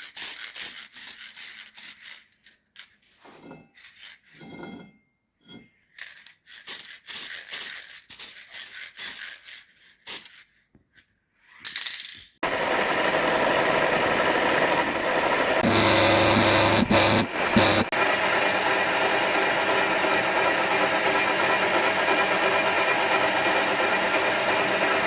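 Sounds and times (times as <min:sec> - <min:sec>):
small parts scraping and rattling: 0:00.0 - 0:04.9, 0:05.5 - 0:17.9
loud steady machine noise: 0:12.4 - 0:25.0.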